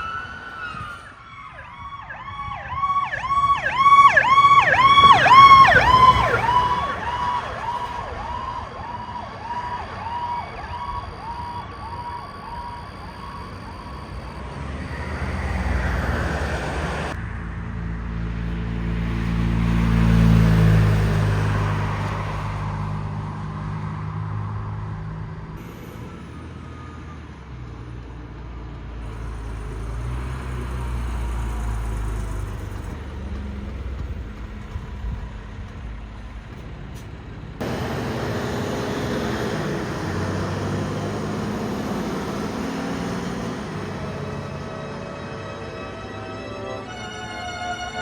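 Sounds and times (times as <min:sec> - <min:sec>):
traffic noise: 0:00.0 - 0:48.0
heavy vehicle engine passing: 0:02.8 - 0:48.0.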